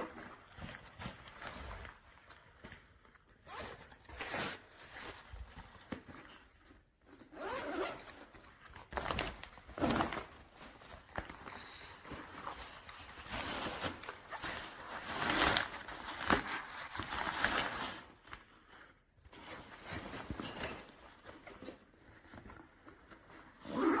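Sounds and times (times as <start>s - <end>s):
backpack zippers zipping: 3.4s - 4.7s, 7.3s - 8.2s, 23.6s - 24.0s.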